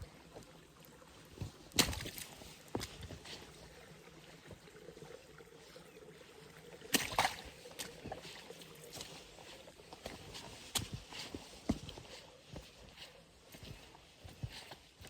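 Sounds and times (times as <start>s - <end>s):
footsteps crunching on forest floor: 7.3s - 15.0s.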